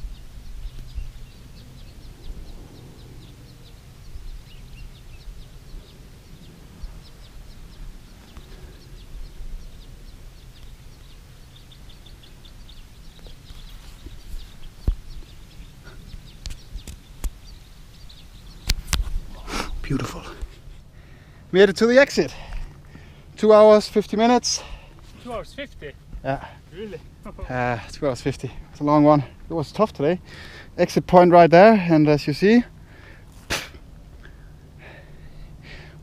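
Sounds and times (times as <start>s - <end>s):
low steady rumble: 0.0s - 21.6s, 32.6s - 36.0s
small birds chirping: 0.0s - 36.0s.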